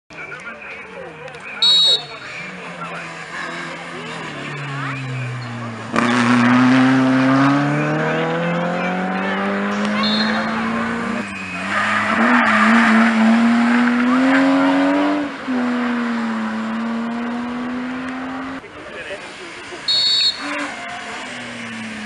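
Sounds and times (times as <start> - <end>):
rally car engine pulling hard: 2.2 - 22.0
tyre squeal: 10.0 - 13.2, 19.9 - 21.0.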